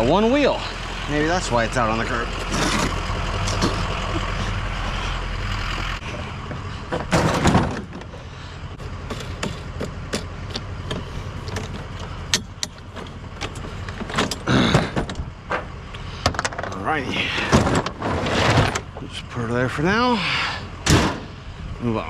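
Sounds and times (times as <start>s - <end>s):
loud clatter: 17.4s - 19.0s.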